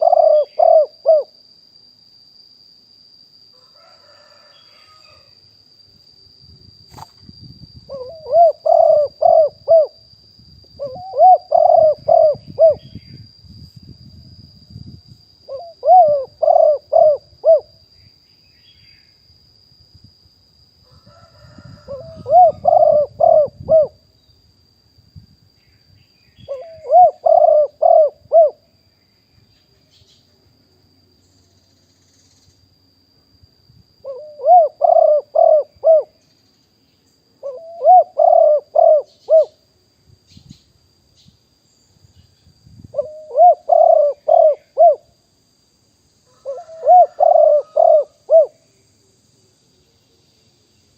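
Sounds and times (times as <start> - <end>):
dove cooing: 0.0 - 1.3, 7.9 - 10.0, 10.8 - 13.0, 15.5 - 17.7, 21.2 - 24.0, 26.5 - 28.6, 34.0 - 36.2, 37.4 - 39.6, 42.9 - 45.1, 46.3 - 48.6.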